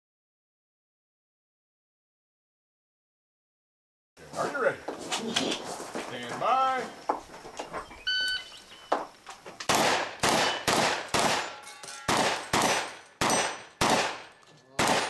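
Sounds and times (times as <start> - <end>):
shotgun shots: 9.7 - 15.0
steel targets ringing: 10.4 - 14.5.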